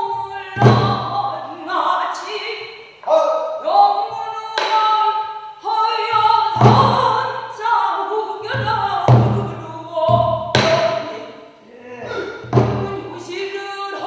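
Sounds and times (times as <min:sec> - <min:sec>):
barrel drum strokes and knocks: 0:00.5 - 0:01.2, 0:06.1 - 0:07.3, 0:08.5 - 0:11.0, 0:12.4 - 0:13.1.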